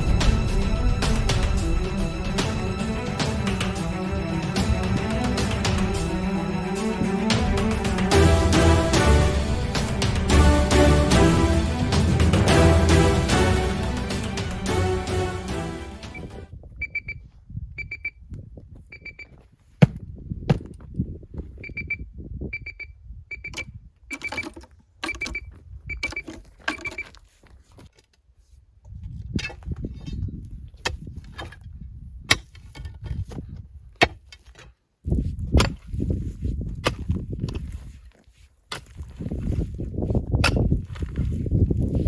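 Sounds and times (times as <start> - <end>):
low rumble: 0.0 - 16.5
metal detector beeps: 16.8 - 17.2, 17.8 - 18.2, 18.9 - 19.3, 21.6 - 27.1.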